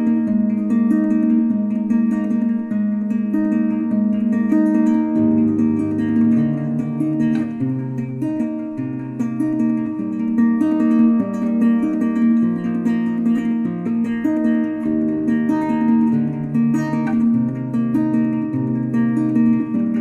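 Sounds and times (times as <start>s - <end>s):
acoustic guitar plucked notes: 0.0s - 20.0s.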